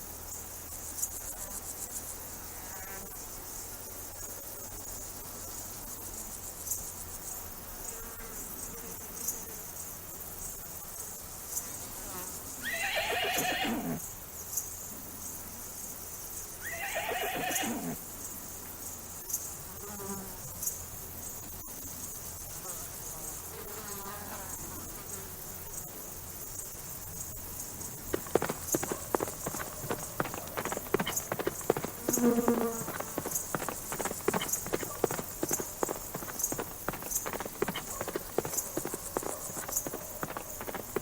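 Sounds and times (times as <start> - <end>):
horse whinnying: 12.6 - 14.0, 16.6 - 18.0, 28.2 - 41.0
high insect buzz: 27.8 - 41.0.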